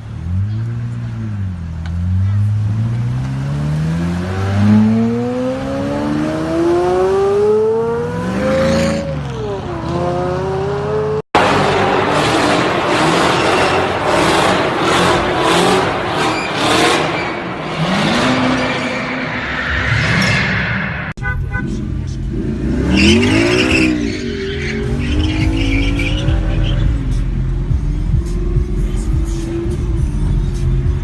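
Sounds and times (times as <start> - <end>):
car engine revving: 0.0 - 31.0
tyre squeal: 16.1 - 20.9, 23.0 - 27.0.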